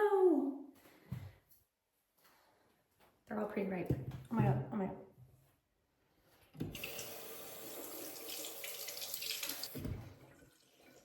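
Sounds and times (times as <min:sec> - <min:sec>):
water running into sink: 0:06.6 - 0:11.0.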